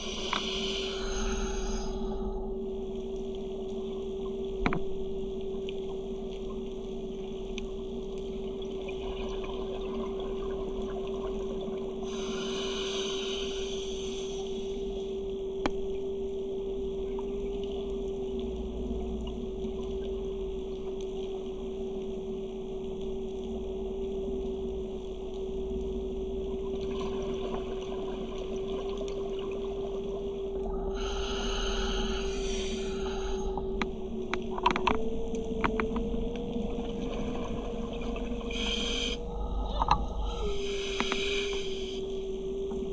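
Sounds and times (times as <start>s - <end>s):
rush of hissing noise: 0.0s - 2.5s, 12.1s - 15.1s, 30.7s - 33.8s, 38.5s - 42.0s
steady underwater hum: 0.0s - 42.9s
faint crackling ticks: 3.1s - 8.8s, 17.1s - 26.7s, 33.6s - 36.7s.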